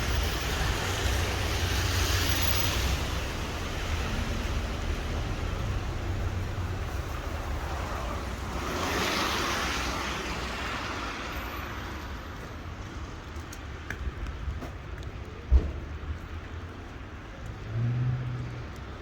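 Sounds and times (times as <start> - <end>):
car tyres hissing on wet street: 0.0 - 13.8
traffic rumble: 0.0 - 19.0.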